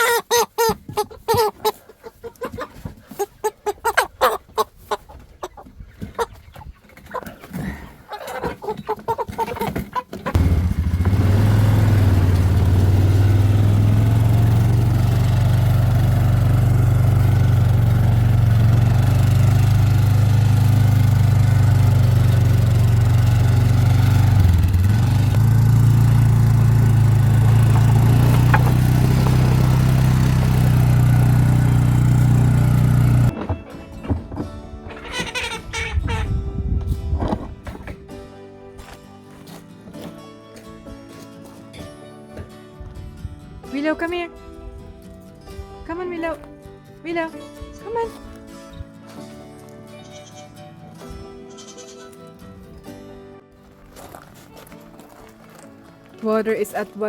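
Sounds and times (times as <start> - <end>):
chickens clucking and squawking: 0.0 - 10.4, 34.8 - 36.4
small engine running: 10.4 - 33.4.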